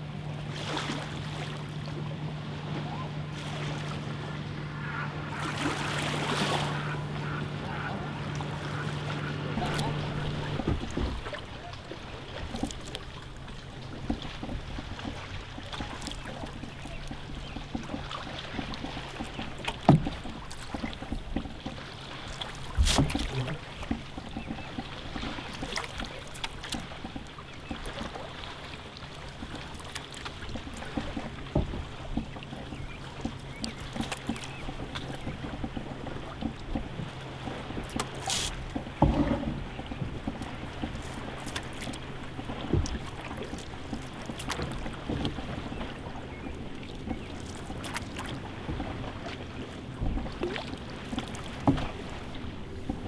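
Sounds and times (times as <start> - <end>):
paddle strokes: 0.0 - 53.0
water lapping along hull: 0.0 - 53.0
paddle knocking against canoe: 1.3 - 53.0.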